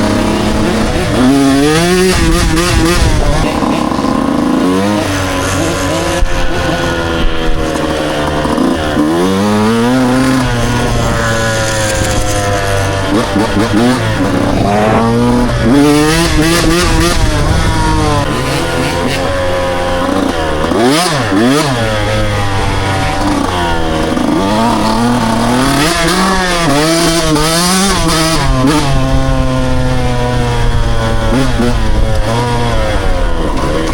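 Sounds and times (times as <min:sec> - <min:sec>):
dirt bike engines revving: 0:00.0 - 0:33.9
engine running at steady pitch: 0:00.0 - 0:33.9.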